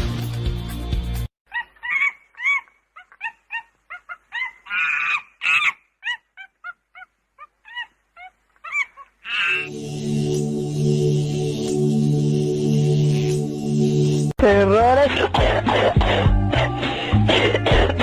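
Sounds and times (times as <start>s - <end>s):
harsh animal calls: 1.5s - 11.0s.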